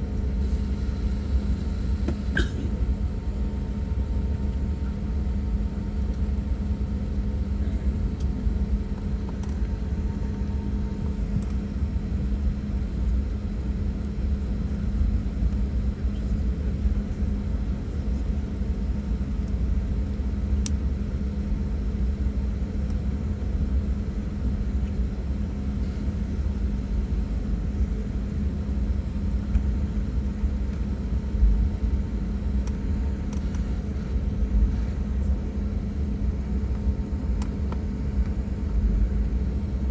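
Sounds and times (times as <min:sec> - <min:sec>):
airliner cabin engine hum: 0:00.0 - 0:39.9
faint click: 0:32.6 - 0:33.7, 0:37.4 - 0:38.4.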